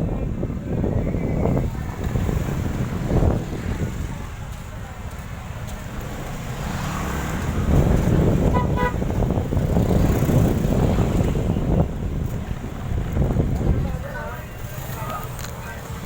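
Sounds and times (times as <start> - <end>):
wind buffeting microphone: 0.0 - 16.0
vehicle horn toots: 8.4 - 9.0.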